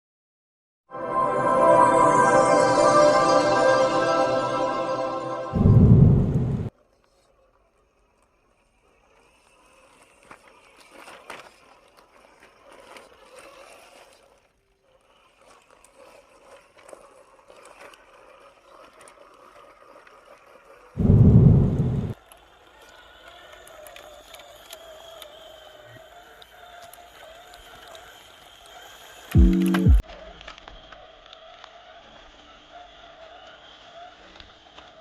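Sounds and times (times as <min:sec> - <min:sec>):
loud low boom: 0:05.5 - 0:06.7, 0:21.0 - 0:22.2
electric motor and gears whirring: 0:07.9 - 0:30.0.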